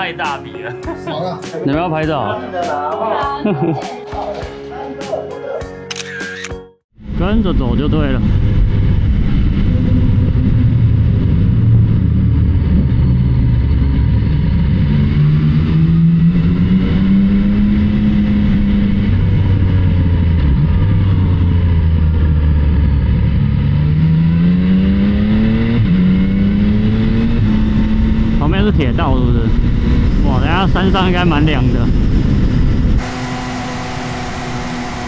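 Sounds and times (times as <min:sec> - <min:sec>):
low wind rumble: 0:07.0 - 0:35.0
motorcycle engine accelerating: 0:07.0 - 0:35.0.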